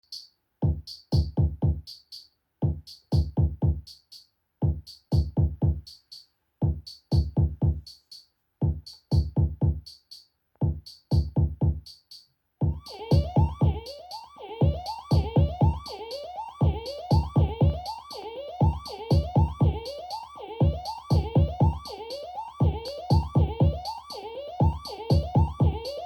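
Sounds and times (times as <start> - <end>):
bright hi-hat ticks: 0.0 - 12.3
low kick drum hits: 0.6 - 1.8, 2.6 - 3.8, 4.6 - 5.8, 6.6 - 7.8, 8.6 - 9.8, 10.6 - 11.8, 12.6 - 13.8.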